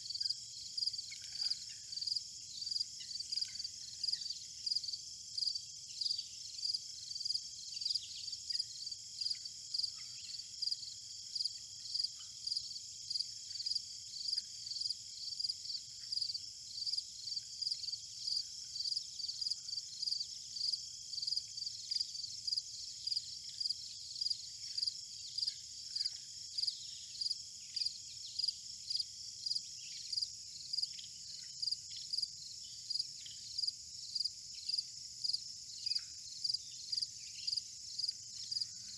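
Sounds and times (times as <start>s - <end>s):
insects buzzing and chirping: 0.0s - 38.9s.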